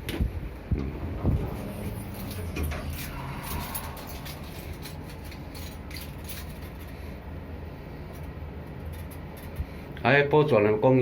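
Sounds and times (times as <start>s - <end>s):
elevator humming: 0.0s - 9.7s
light clicks and rattles: 8.1s - 9.8s.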